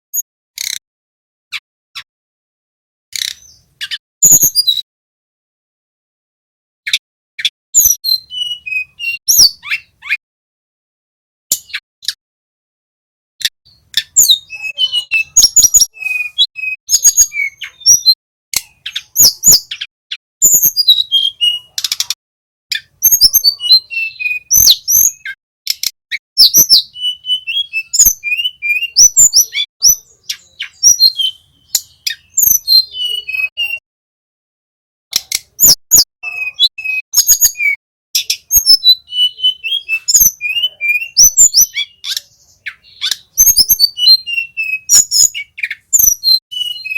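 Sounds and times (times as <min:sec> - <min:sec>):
bird singing chirps and whistles: 0:03.2 - 0:04.8, 0:06.9 - 0:10.2, 0:13.7 - 0:33.8, 0:35.1 - 0:46.9.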